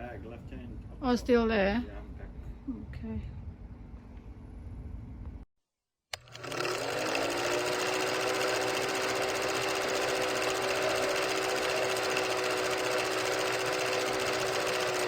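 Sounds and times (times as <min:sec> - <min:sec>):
motor whine: 0:06.2 - 0:15.0.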